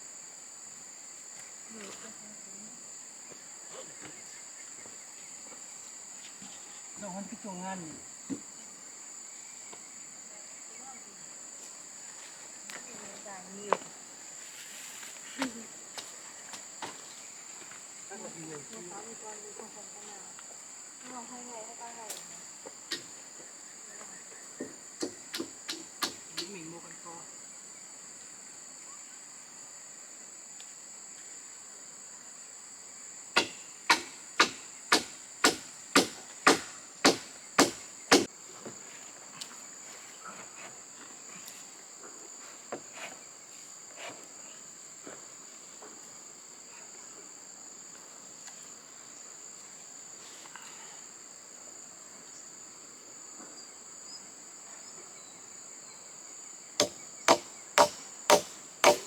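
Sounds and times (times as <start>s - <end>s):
hand tool striking wood: 25.0s - 26.5s, 33.4s - 38.3s, 56.8s - 59.0s.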